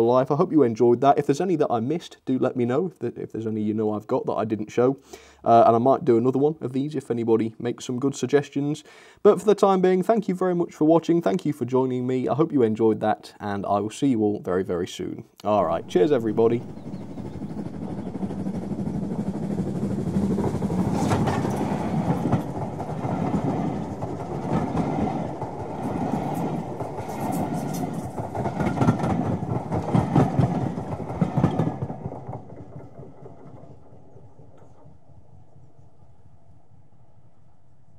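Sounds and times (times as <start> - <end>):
train wheels clacking over joints: 15.6 - 35.3.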